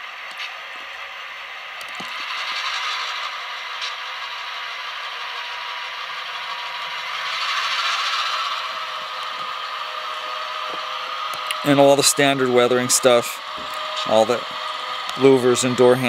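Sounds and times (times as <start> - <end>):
thin rattling model train engine: 0.0 - 16.0.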